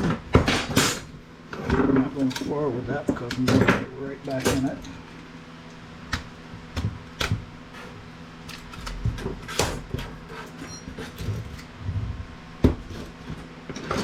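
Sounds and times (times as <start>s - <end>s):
faint steady hum: 0.0s - 14.0s
clicks and knocks of parts handled: 0.6s - 2.5s.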